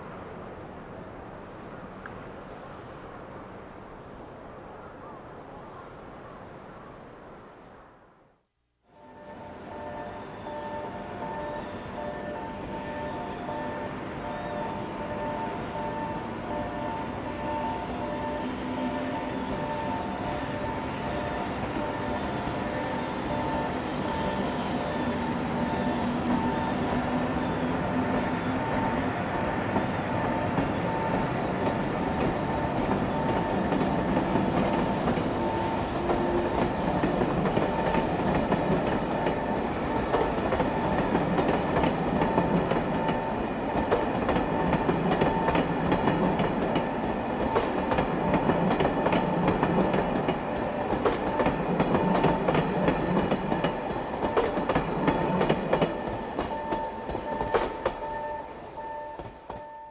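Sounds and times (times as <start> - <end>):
train rumble: 8.9 - 59.9
train whining tones: 8.9 - 59.9
train wheels clicking over rail joints: 29.7 - 58.5.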